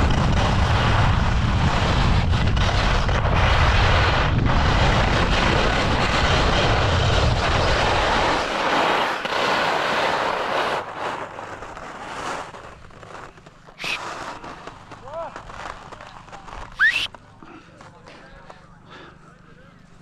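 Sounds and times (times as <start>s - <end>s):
wind rumbling on microphone: 0.0s - 8.6s
ski edges scraping icy snow: 1.7s - 17.2s.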